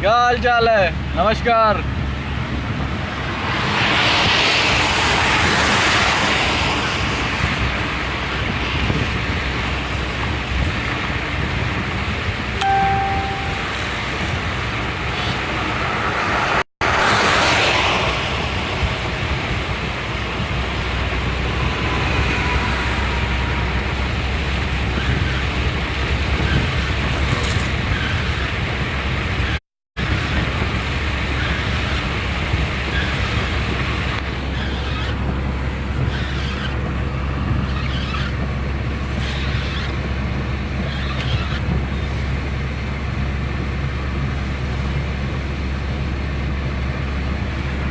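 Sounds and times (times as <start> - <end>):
car engine and road noise: 0.0 - 47.9.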